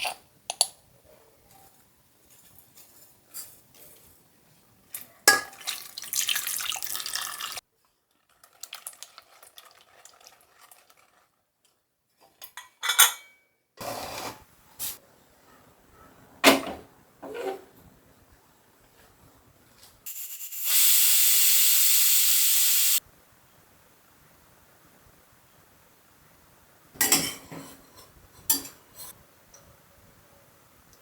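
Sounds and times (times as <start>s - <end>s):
water running: 5.4s - 7.6s
dishes and utensils clinking: 12.4s - 13.4s, 27.0s - 29.2s.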